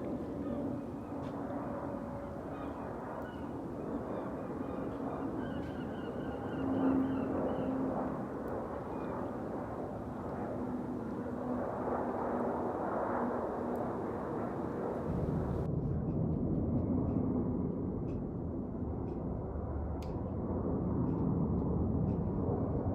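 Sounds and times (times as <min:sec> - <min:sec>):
jet engines rumbling: 0:00.0 - 0:16.8.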